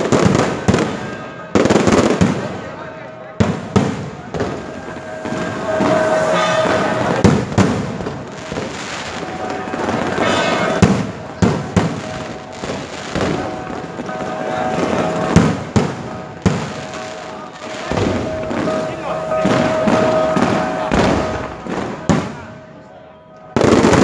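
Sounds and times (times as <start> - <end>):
firework shells bursting: 3.4 - 22.5
crackling of burning sparks: 3.5 - 22.5.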